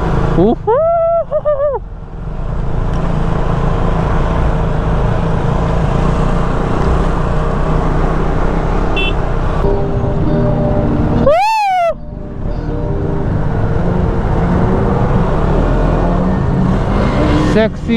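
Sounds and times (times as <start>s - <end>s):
motorcycle engines rumbling: 0.0s - 17.9s.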